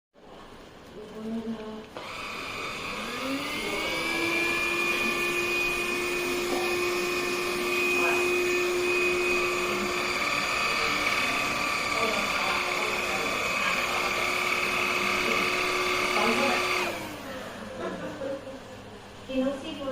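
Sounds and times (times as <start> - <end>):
cordless vacuum motor whine: 2.0 - 17.3.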